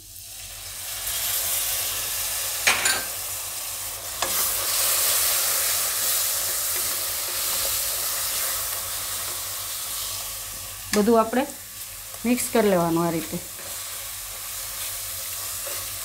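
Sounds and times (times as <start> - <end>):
tomato sizzling in hot oil: 0.0 - 16.0
spatula stirring in a pan: 4.0 - 11.0, 13.2 - 16.0.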